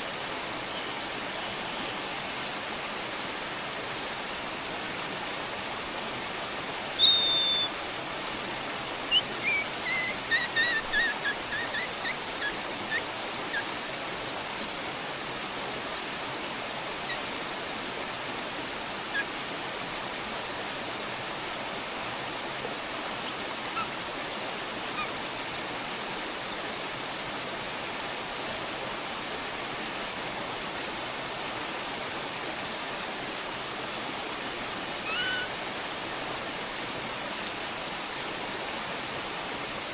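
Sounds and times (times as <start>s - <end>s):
bird calling: 7.0s - 7.8s, 9.1s - 15.7s, 16.7s - 17.7s, 18.9s - 20.1s, 23.7s - 24.1s, 24.9s - 25.3s, 35.0s - 36.2s.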